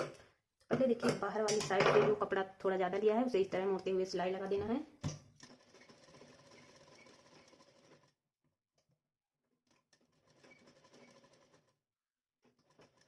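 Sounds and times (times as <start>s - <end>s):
sewing machine stitching: 5.4s - 8.2s, 9.6s - 11.8s, 12.5s - 13.0s.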